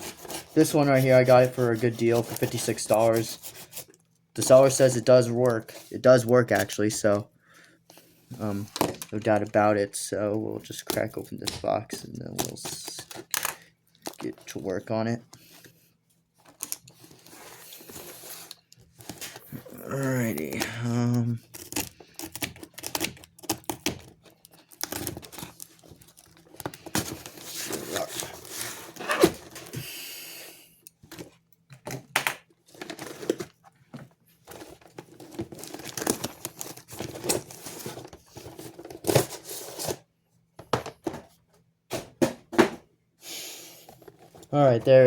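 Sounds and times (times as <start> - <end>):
box packaging tearing and crinkling: 0.0 - 6.8, 21.4 - 29.8, 32.7 - 33.6, 34.5 - 40.0.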